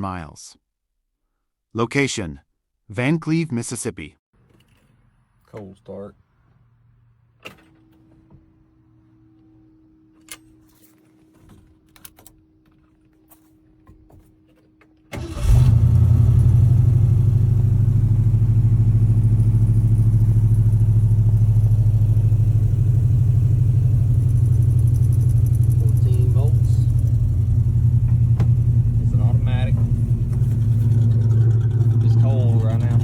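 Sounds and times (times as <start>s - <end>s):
car engine starting and idling: 15.1s - 33.0s.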